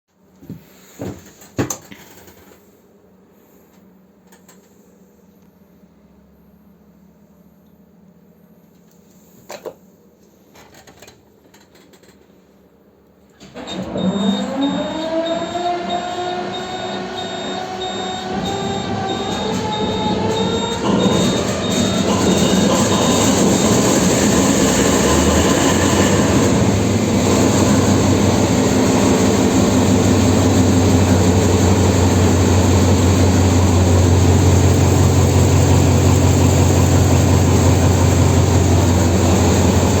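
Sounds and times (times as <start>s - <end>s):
locomotive engine starting: 13.4s - 40.0s.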